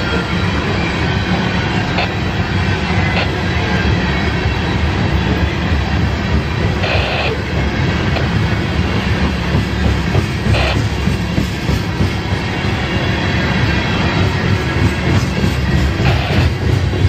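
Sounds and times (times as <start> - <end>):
freight train wheels rumbling: 0.0 - 17.0
high wheel squeal: 12.2 - 17.0.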